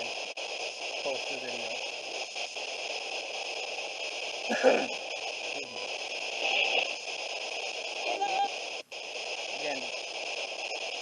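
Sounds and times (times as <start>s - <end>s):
radio static hiss: 0.0s - 11.0s
snatches of radio sound: 0.0s - 11.0s.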